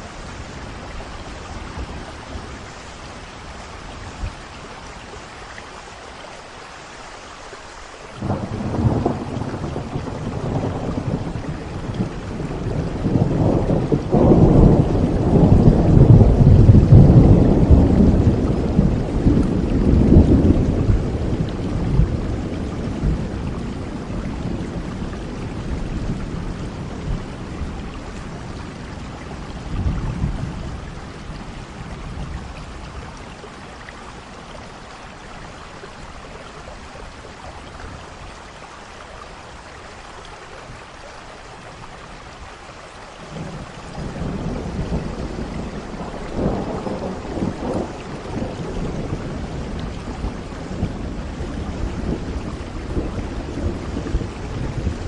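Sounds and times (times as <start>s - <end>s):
steady rain: 0.0s - 55.0s
rolling thunder: 8.2s - 33.5s, 43.2s - 55.0s.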